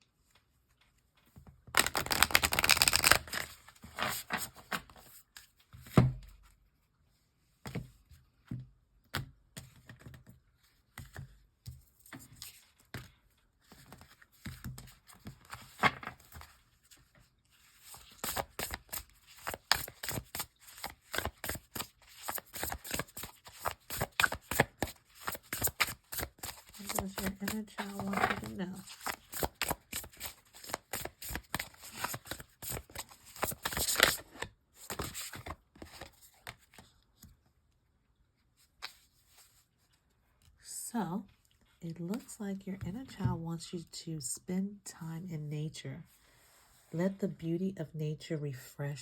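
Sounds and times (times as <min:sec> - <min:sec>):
cards riffle shuffling: 0:01.8 - 0:04.7, 0:17.8 - 0:36.8.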